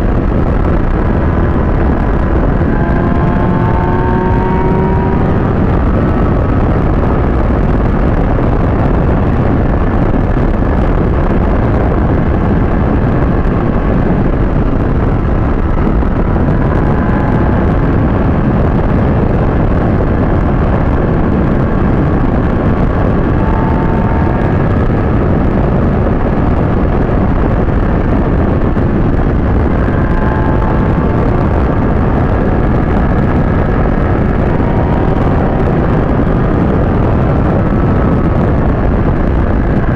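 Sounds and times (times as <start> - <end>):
motorcycle engine whine: 0.0 - 39.9
wind noise on microphone: 0.0 - 39.9.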